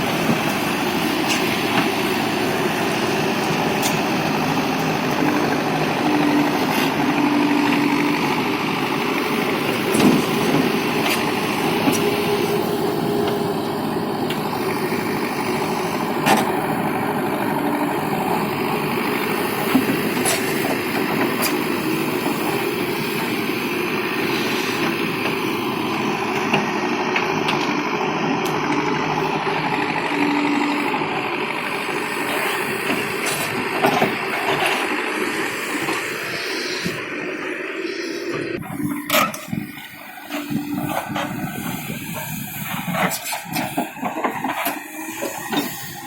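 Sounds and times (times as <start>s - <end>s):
tractor diesel engine running: 0.0s - 46.0s.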